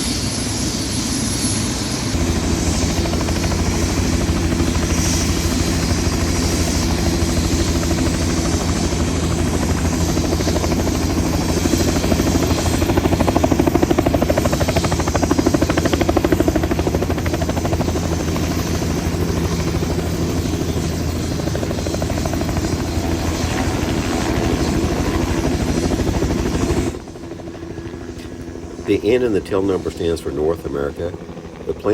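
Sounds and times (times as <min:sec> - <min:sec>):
helicopter rotor blades beating: 0:00.0 - 0:31.9.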